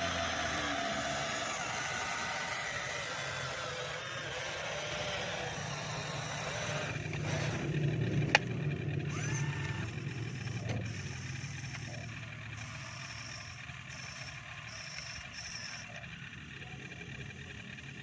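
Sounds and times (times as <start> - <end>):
electric motors humming: 0.0 - 18.0.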